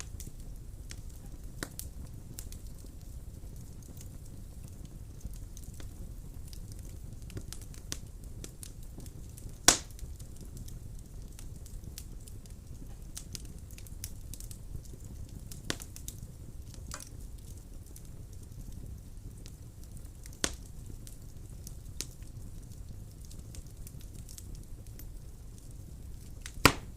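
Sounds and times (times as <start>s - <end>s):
fire crackles: 0.0s - 26.9s
low rumble of flames: 0.0s - 26.9s
sharp pop from fire: 9.7s - 10.0s, 15.7s - 16.0s, 20.4s - 20.7s, 26.5s - 26.9s.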